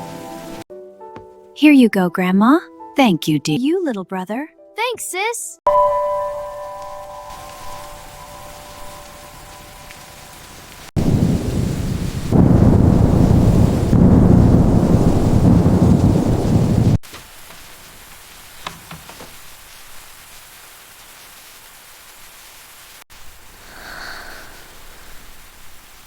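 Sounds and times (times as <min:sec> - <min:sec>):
heavy rain: 0:00.0 - 0:00.6, 0:06.4 - 0:26.0
light rain hissing: 0:00.0 - 0:00.7, 0:06.4 - 0:26.0
thunder rumbling: 0:06.6 - 0:17.0.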